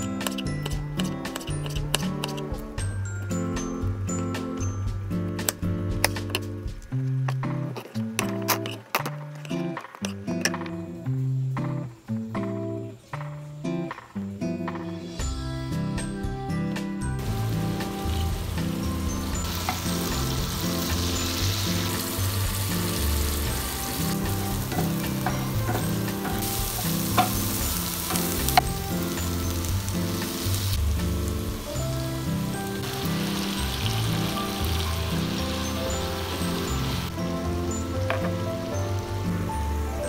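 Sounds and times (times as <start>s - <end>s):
background music: 0.0s - 40.0s
vegetables sizzling in oil: 17.2s - 40.0s.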